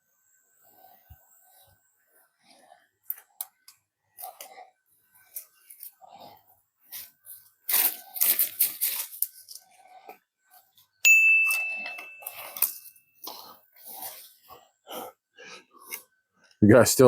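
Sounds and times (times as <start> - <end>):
sharp metallic clang: 11.1 - 12.9.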